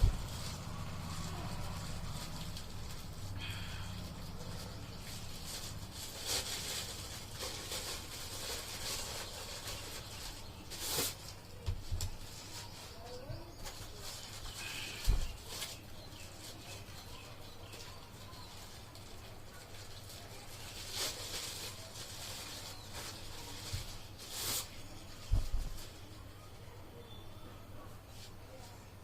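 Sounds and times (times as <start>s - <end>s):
plastic packaging crinkling: 0.0s - 26.5s.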